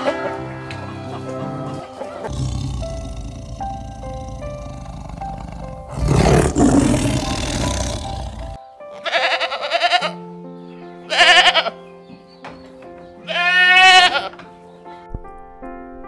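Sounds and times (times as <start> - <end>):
background music with held tones: 0.0 - 16.0
tiger roaring: 2.2 - 8.6
goat bleating: 2.2 - 10.2, 11.1 - 11.8, 13.2 - 14.4.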